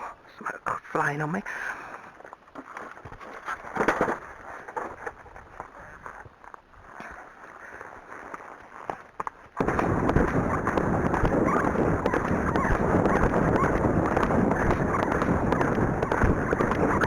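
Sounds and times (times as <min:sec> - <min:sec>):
horse hoofbeats: 0:08.1 - 0:17.0
wind buffeting microphone: 0:09.6 - 0:17.0.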